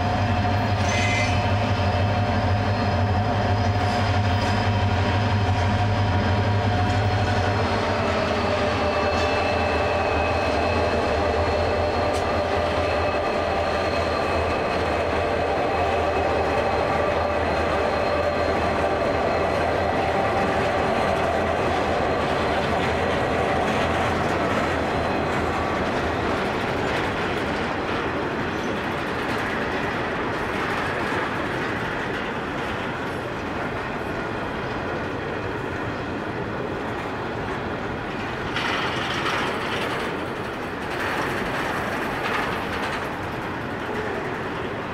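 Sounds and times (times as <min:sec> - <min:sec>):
wagon wheels rumbling on rails: 0:00.0 - 0:35.0, 0:36.7 - 0:44.9
locomotive engine hum: 0:00.0 - 0:44.9
high-pitched ringing tones: 0:00.8 - 0:01.6.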